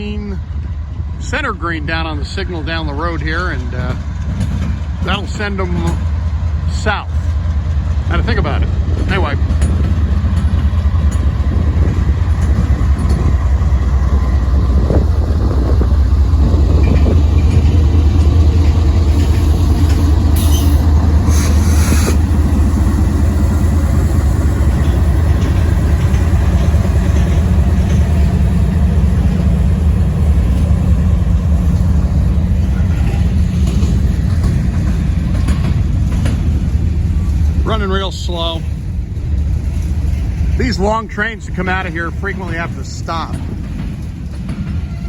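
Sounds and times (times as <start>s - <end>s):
diesel locomotives rumbling: 0.0s - 45.0s
short hisses: 21.2s - 22.3s.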